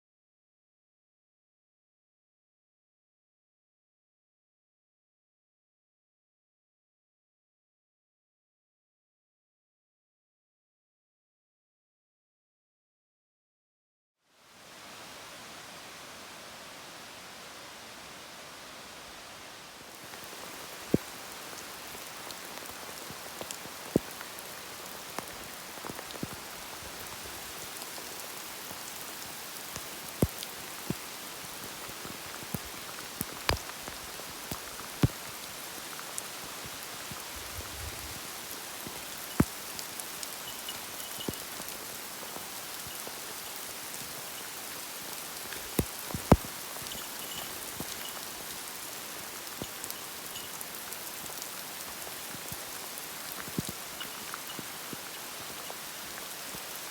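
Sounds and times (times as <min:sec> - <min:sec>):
heavy rain falling: 0:14.6 - 0:56.9
large raindrops tapping: 0:19.9 - 0:56.9.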